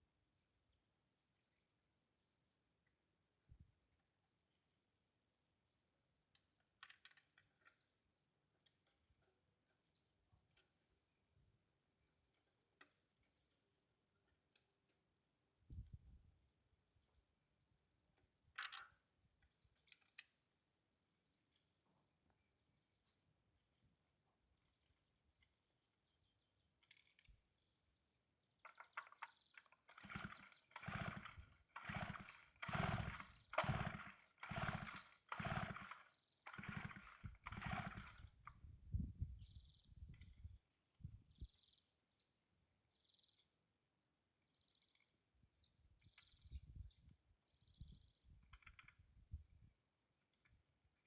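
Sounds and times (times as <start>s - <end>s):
chainsaw starter cord pulls: 28.7s - 38.6s.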